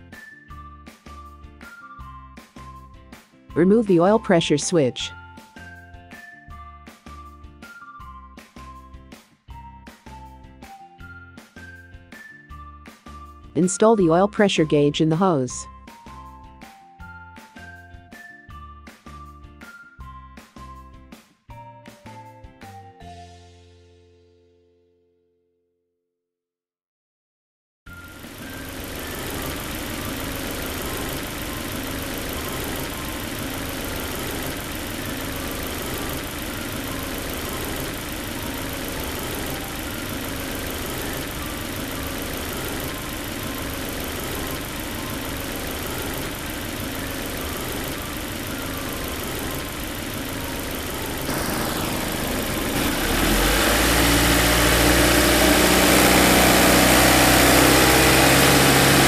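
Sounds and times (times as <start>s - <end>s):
car engine idling: 28.1s - 59.0s.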